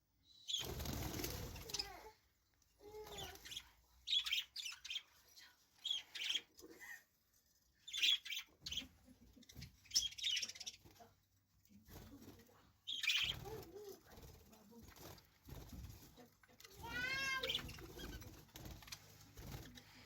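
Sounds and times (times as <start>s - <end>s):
budgerigars chirping: 3.5s - 5.1s, 7.9s - 10.8s, 12.9s - 13.5s.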